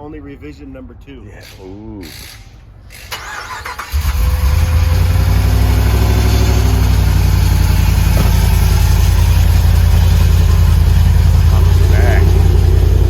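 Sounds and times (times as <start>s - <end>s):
truck engine idling: 4.2s - 13.0s.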